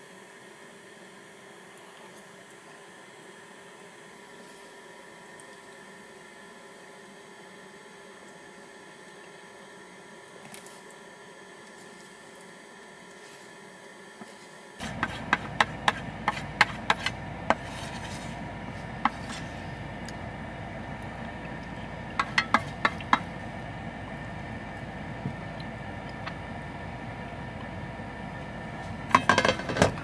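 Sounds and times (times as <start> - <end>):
steady background hum: 14.8 - 30.0.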